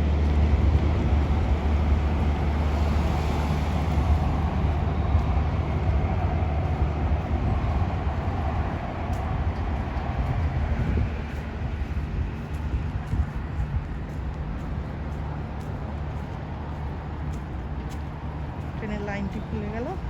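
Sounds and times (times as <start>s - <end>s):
train passing rumble: 0.0s - 20.0s.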